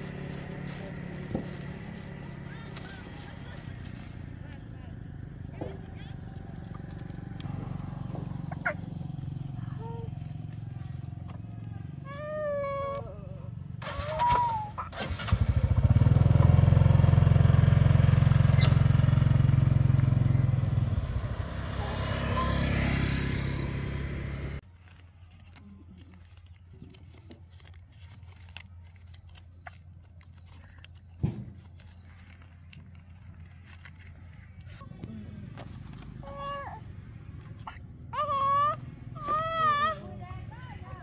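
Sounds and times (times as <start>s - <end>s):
motorbike engine running: 0.0s - 24.6s.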